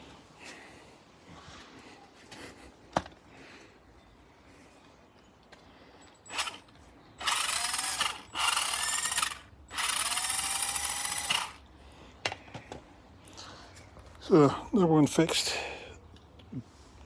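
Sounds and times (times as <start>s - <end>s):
electric motor whine: 6.3s - 6.6s, 7.2s - 11.6s.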